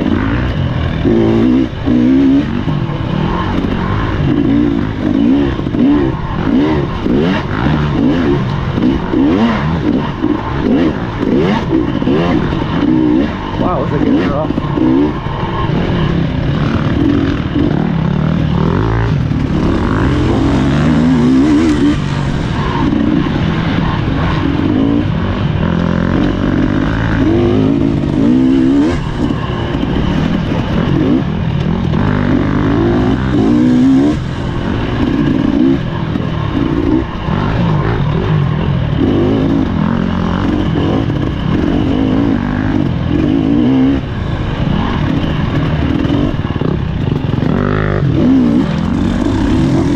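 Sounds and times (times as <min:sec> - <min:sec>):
dirt bike engine revving: 0:00.0 - 0:49.9.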